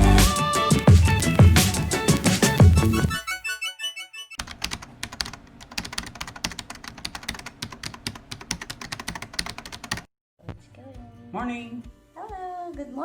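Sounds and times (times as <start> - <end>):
music notes: 0.0 - 4.4.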